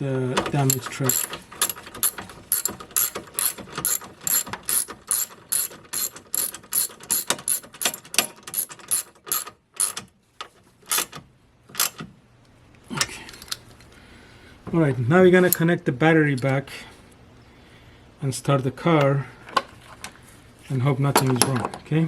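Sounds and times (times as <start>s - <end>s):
ratchet wrench clicking: 0.6s - 10.0s.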